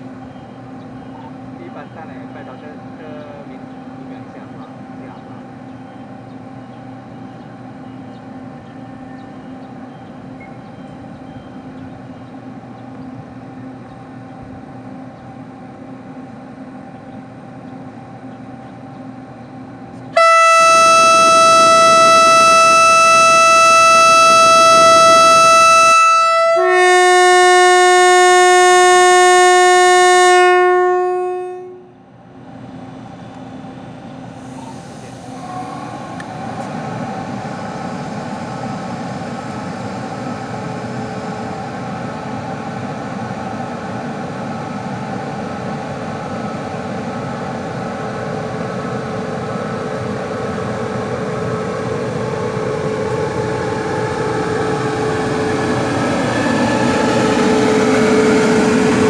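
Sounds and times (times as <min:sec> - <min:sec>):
two-note train horn: 0:20.1 - 0:32.0, 0:48.0 - 0:59.0.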